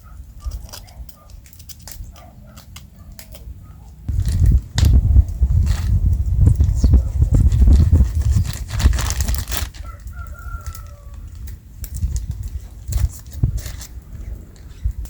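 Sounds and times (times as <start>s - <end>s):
low rumble: 4.1s - 9.6s.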